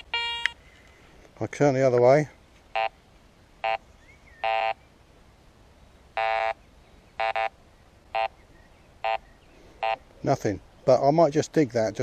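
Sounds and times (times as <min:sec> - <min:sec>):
metal detector beeping: 0:00.0 - 0:00.6, 0:04.4 - 0:04.8, 0:06.2 - 0:06.6, 0:07.2 - 0:07.5, 0:09.8 - 0:10.0.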